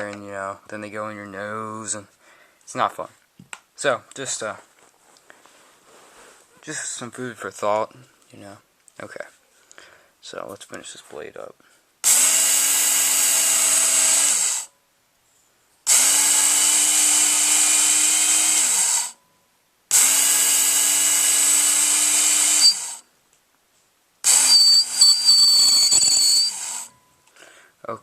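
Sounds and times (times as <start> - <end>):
electric belt sharpener motor: 12.0 - 14.7, 15.9 - 19.2, 19.9 - 23.0, 24.3 - 26.9
steel squealing on belt: 22.4 - 23.0, 24.3 - 27.0.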